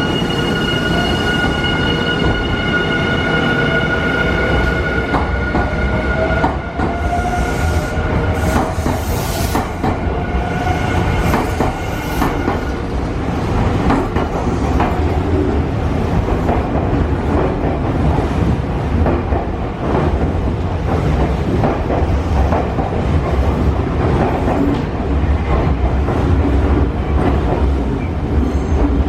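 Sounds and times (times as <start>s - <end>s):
train rumble: 0.0s - 29.0s
train wheels clacking over rail joints: 11.2s - 12.7s.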